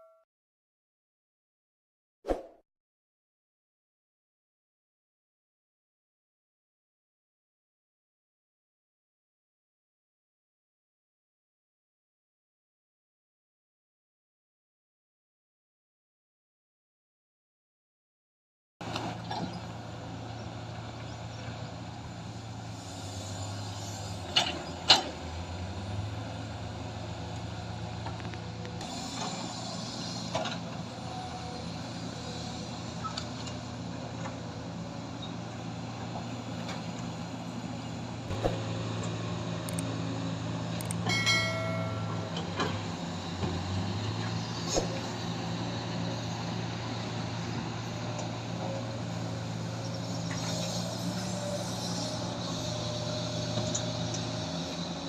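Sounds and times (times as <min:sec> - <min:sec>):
excavator diesel engine running: 0:18.8 - 0:55.0.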